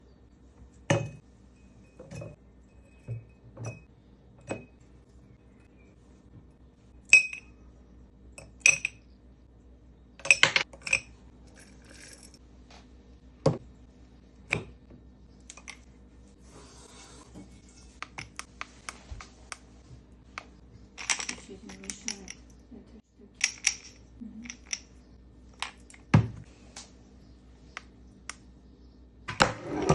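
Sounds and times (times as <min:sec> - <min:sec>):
glass and dishes clinking: 0:00.9 - 0:04.8.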